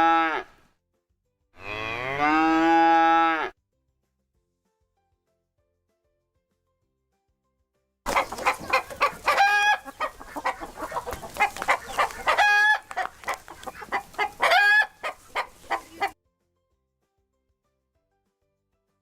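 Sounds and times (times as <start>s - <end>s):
chickens clucking: 8.1s - 16.2s
drawn-out chicken calls: 8.1s - 16.2s.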